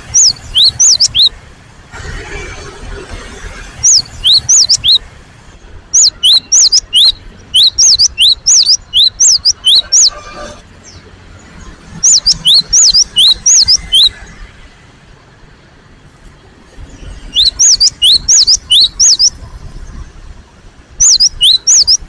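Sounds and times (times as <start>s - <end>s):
bird calling with sharp high notes: 0.0s - 1.4s, 3.8s - 5.0s, 5.9s - 11.0s, 11.6s - 14.4s, 17.0s - 19.4s, 21.0s - 22.0s.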